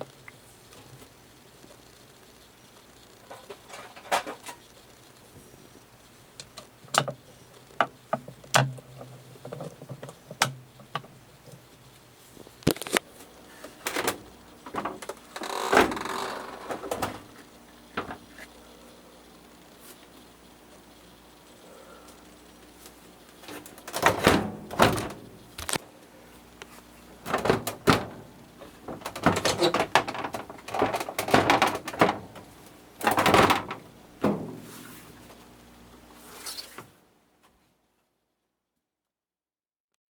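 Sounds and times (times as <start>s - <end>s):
plastic parts clicking and knocking: 23.5s - 25.8s, 27.2s - 34.4s
scraping and rustling: 26.6s - 35.4s.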